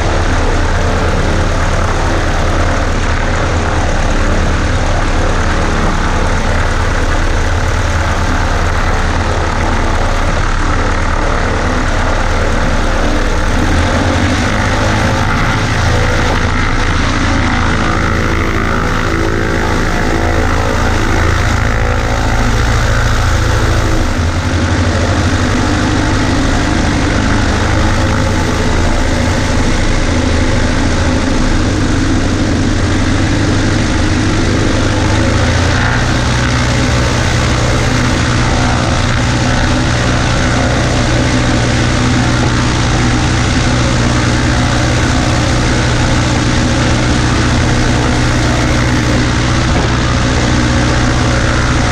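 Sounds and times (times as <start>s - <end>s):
small plane engine and propeller: 0.0s - 51.9s.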